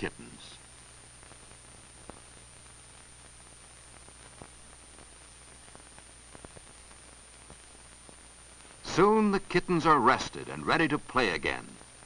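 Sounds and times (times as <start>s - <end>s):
film soundtrack hiss: 0.0s - 12.0s
faint clicks and pops: 0.6s - 8.9s.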